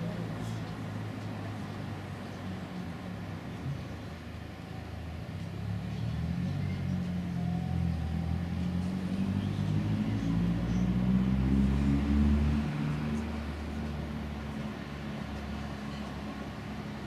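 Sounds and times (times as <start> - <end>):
car engine accelerating: 5.5 - 15.7.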